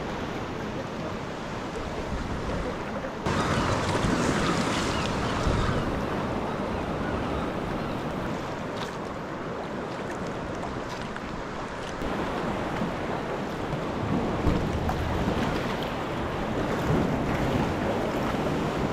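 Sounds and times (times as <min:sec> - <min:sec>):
sea water washing: 0:00.0 - 0:18.9
wind buffeting microphone: 0:01.7 - 0:08.8.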